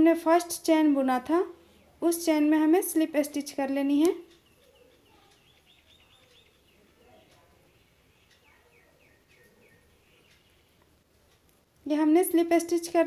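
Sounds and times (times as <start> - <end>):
bird chirping faintly: 3.7 - 11.5.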